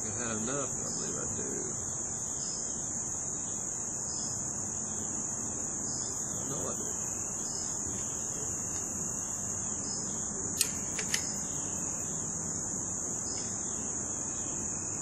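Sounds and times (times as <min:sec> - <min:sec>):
insects chirring: 0:00.0 - 0:15.0
sharp clicks: 0:10.6 - 0:11.5.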